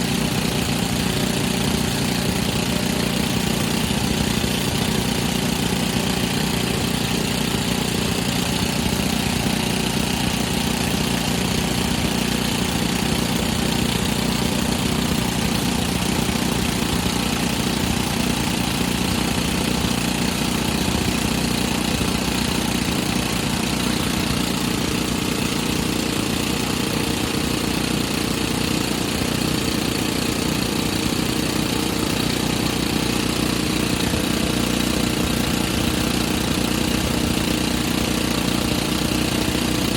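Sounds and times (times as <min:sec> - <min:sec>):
drill rig engine running: 0:00.0 - 0:39.9.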